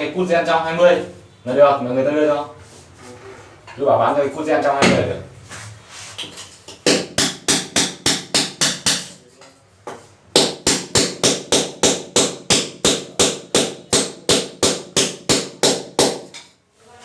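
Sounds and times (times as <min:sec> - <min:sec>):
hammer striking: 0:06.7 - 0:09.2, 0:09.9 - 0:16.5.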